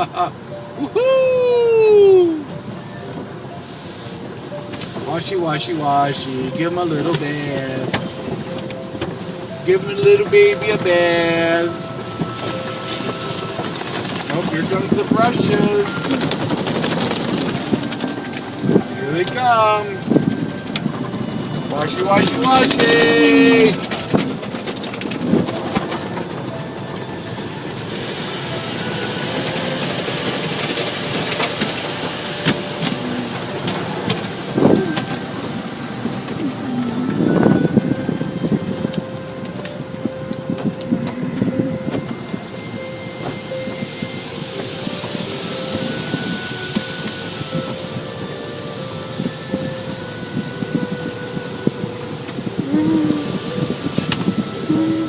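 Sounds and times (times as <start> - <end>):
mechanical hum: 0.0 - 55.0
car wash rattling patter: 2.4 - 52.6
water spraying: 3.6 - 20.6, 42.4 - 55.0.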